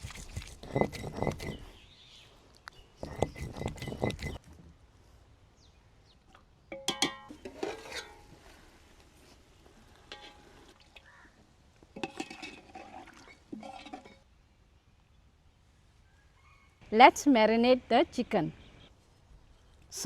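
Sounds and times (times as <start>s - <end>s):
metal pots clattering: 6.7s - 8.3s, 12.0s - 14.2s.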